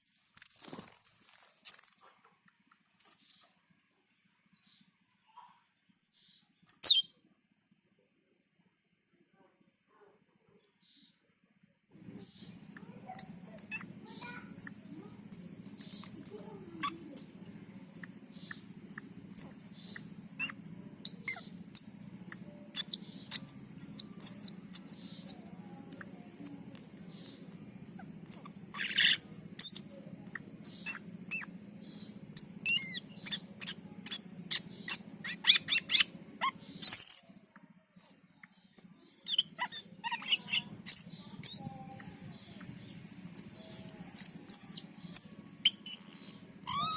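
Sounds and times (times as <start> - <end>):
starling singing chirps and whistles: 0.0 - 2.1, 6.8 - 7.1, 12.1 - 46.9
steady low hum: 11.9 - 46.9.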